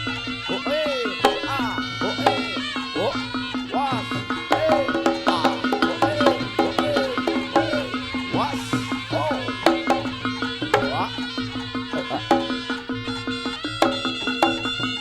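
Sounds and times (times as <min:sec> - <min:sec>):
hand drum strokes: 0:00.0 - 0:15.0.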